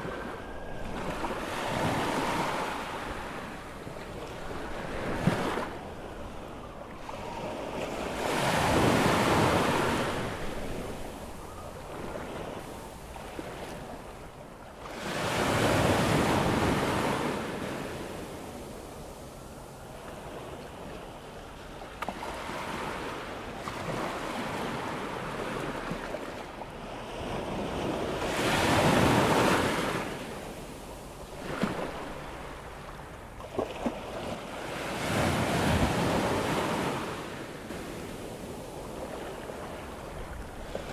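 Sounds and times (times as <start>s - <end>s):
surf washing up a beach: 0.0s - 21.2s, 27.3s - 40.9s
waves breaking: 28.4s - 40.9s.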